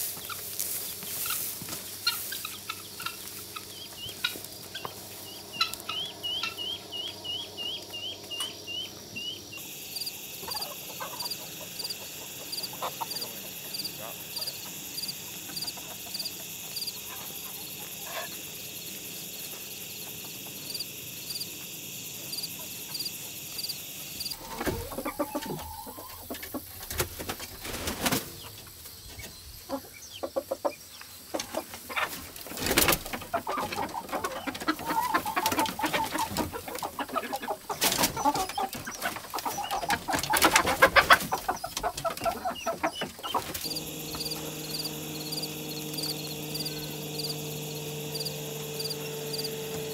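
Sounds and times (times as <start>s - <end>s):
chickens clucking: 0.0s - 49.9s
pulsing high-pitched background: 43.6s - 49.6s.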